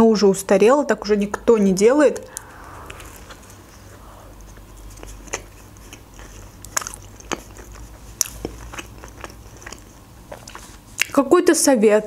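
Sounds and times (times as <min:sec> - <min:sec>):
person chewing a burger: 0:06.2 - 0:11.1.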